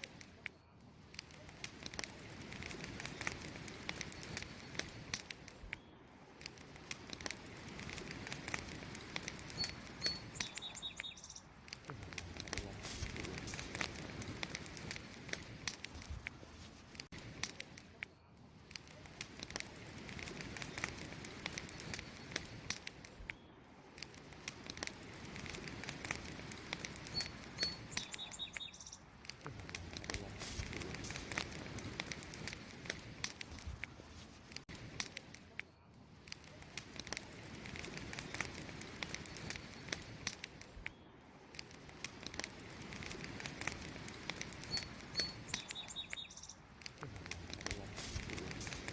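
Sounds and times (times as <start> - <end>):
campfire crackling and popping: 0.0 - 48.9
small bird chirping: 9.2 - 11.8, 26.9 - 29.1, 44.5 - 46.7.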